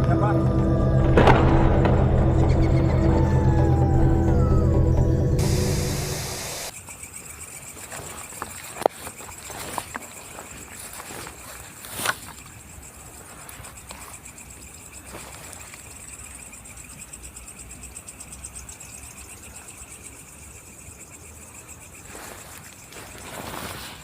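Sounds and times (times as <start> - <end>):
insects chirping: 0.0 - 24.0
sharp knock: 1.1 - 3.2.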